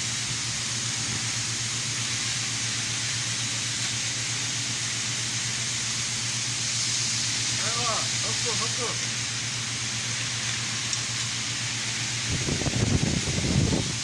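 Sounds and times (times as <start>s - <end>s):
even hiss: 0.0s - 14.0s
steady mechanical hum: 0.0s - 14.0s.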